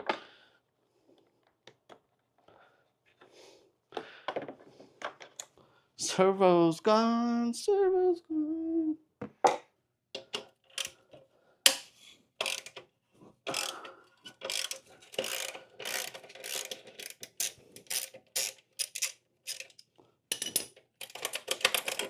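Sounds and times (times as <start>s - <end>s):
ratchet wrench clicking: 12.4s - 12.8s, 13.5s - 13.8s, 14.4s - 19.8s.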